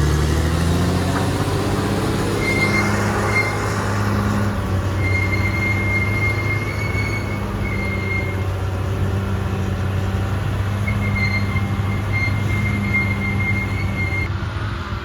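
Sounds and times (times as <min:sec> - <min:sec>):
bulldozer diesel drone: 0:00.0 - 0:15.0
metal squeal of steel tracks: 0:02.2 - 0:08.7, 0:10.8 - 0:14.3.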